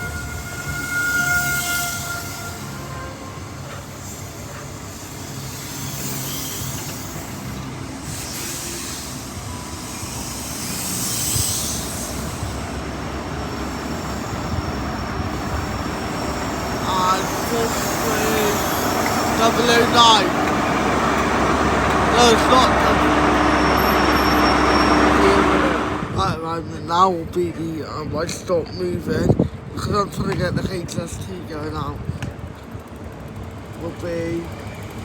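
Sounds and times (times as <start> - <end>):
diesel train engine drone: 0.0 - 29.8, 30.8 - 35.0
hiss from wheels and brakes: 1.0 - 26.2.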